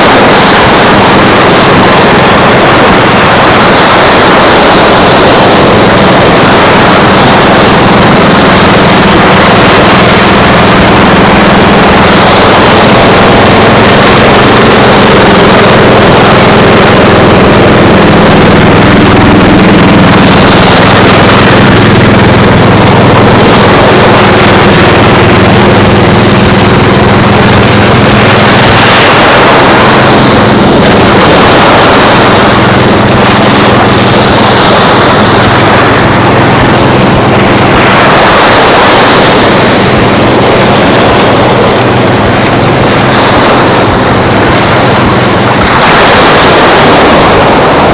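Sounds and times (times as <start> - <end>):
engine humming: 0.0 - 47.9
loud rushing noise: 0.0 - 47.9.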